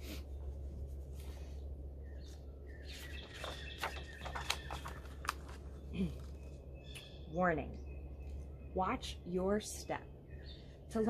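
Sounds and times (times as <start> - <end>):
low steady hum: 0.0 - 11.0
songbirds chirping: 0.0 - 11.0.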